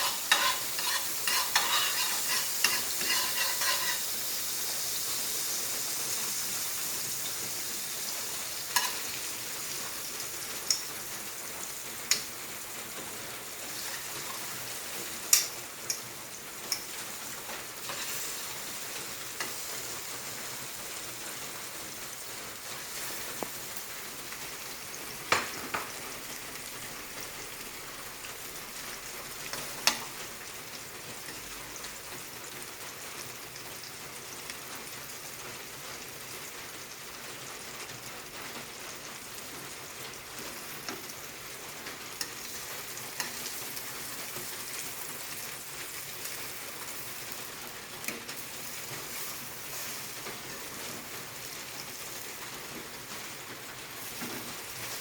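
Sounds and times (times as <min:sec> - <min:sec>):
stirring or scraping strokes: 0:00.0 - 0:04.1
bread sizzling in a pan: 0:00.0 - 0:55.0.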